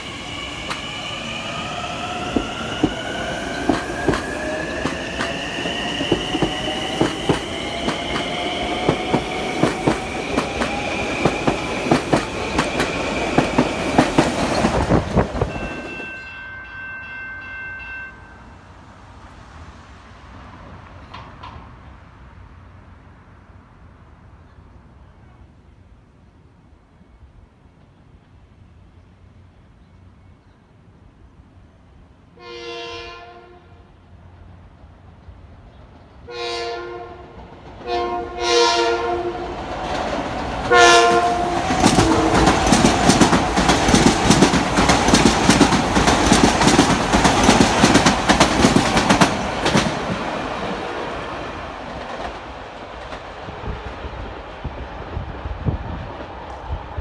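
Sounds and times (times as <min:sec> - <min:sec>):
train air horn blasts: 0:32.4 - 0:33.9, 0:36.3 - 0:39.5, 0:40.7 - 0:42.6.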